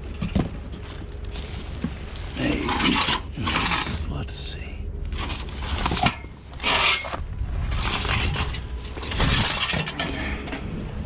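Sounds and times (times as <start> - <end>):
scrap metal scraping and clattering: 0.8 - 4.1, 5.1 - 11.0.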